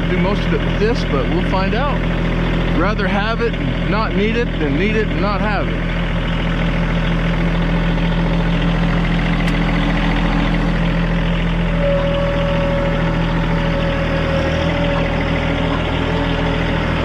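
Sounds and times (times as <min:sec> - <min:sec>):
tractor diesel engine idling: 0:00.0 - 0:17.0
high-pitched whine: 0:11.6 - 0:17.0.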